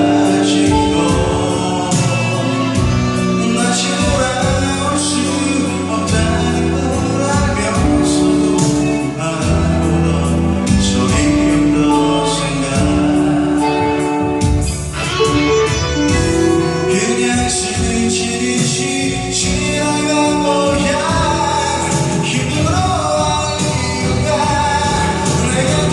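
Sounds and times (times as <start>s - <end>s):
man singing: 0.0s - 25.9s
pop band playing: 0.0s - 25.9s.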